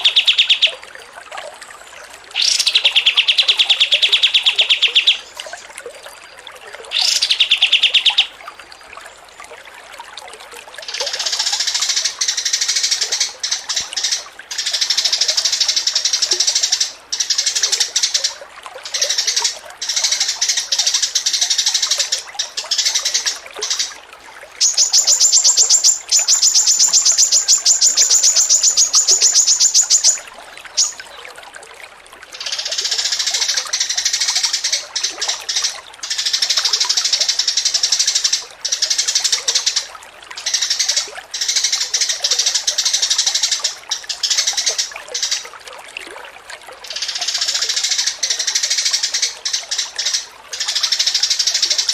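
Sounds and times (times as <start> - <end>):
songbirds chattering song: 0.0 - 0.8, 2.3 - 6.2, 6.9 - 9.0, 24.6 - 31.3
fast high bird trill: 24.6 - 30.2.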